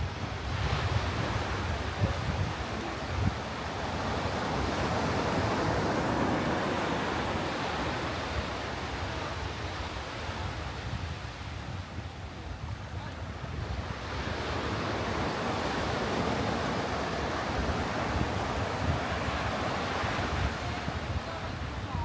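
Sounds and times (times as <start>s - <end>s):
wind rumbling on microphone: 0.0s - 9.6s
sea surf washing onto beach: 13.4s - 22.0s.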